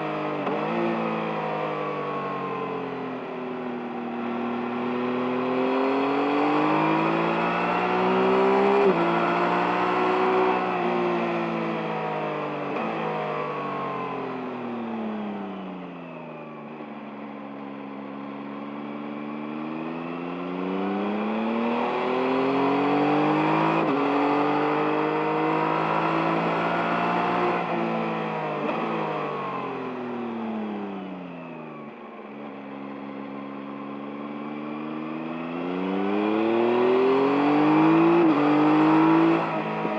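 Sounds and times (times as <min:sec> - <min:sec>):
motorcycle engine revving: 0:32.6 - 0:39.9.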